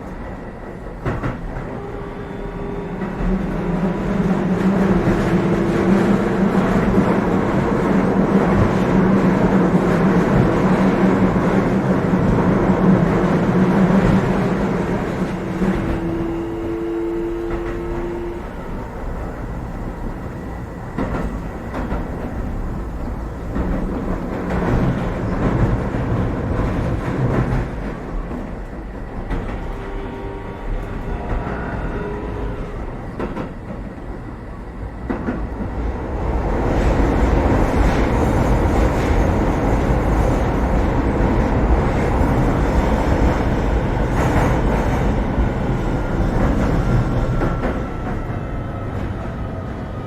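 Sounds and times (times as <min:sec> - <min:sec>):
train running rumble and hum: 0:00.0 - 0:50.0.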